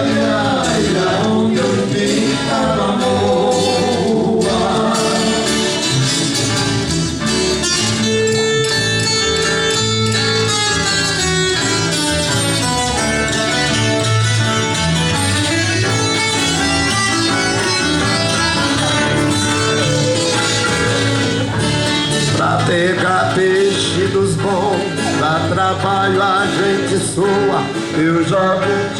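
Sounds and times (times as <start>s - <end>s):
acoustic guitars strumming: 0.0s - 28.9s.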